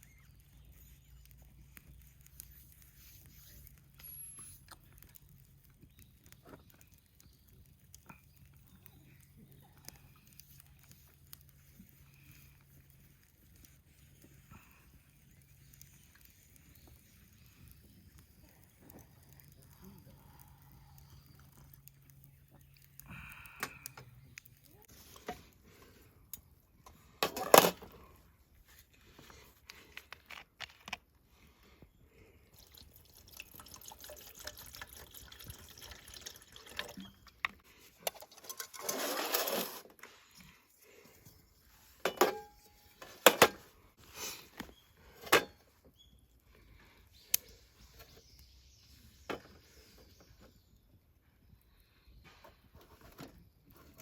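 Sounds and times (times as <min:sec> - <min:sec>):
liquid pouring: 0:32.5 - 0:37.3.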